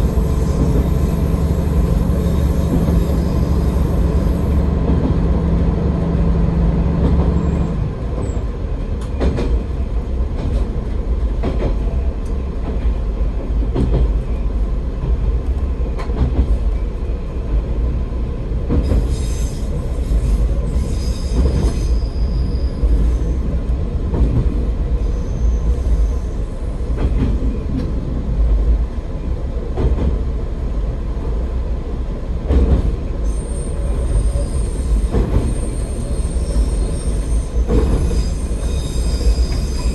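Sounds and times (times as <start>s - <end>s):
rail-joint clicks: 0.0s - 17.9s, 18.6s - 31.4s, 32.3s - 39.9s
railcar engine and wheels droning: 0.0s - 39.9s
high-pitched wheel squeals: 0.2s - 4.7s, 19.0s - 23.4s, 33.2s - 39.9s.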